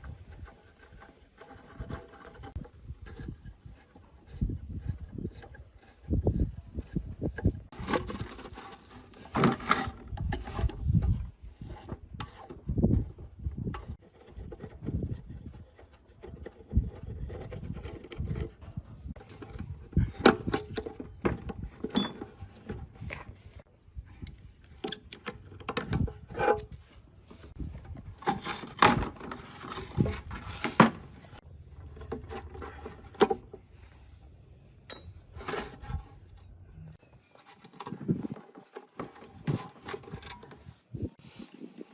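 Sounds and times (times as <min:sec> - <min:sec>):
metal clinks and knocks: 0:21.8 - 0:22.6, 0:34.8 - 0:35.4
hand tool scraping metal: 0:34.8 - 0:41.1.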